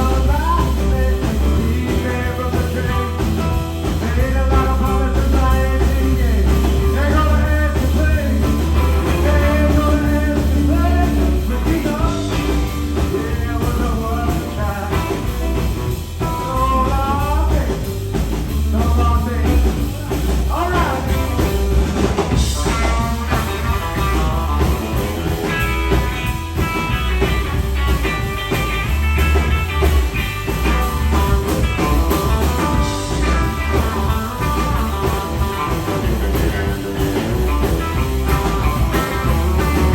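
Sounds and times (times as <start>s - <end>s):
drum kit: 0.0s - 39.9s
electric bass: 0.0s - 39.9s
electric guitar with pitch bends: 20.8s - 39.9s.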